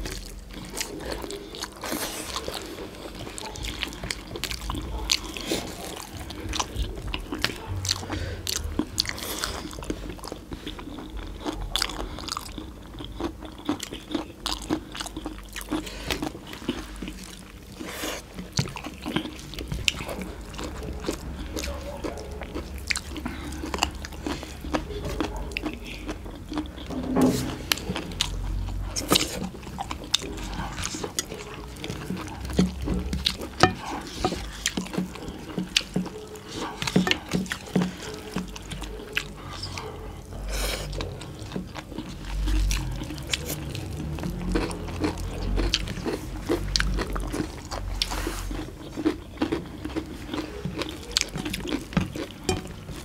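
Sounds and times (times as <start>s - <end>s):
people chewing food: 0.0s - 53.0s.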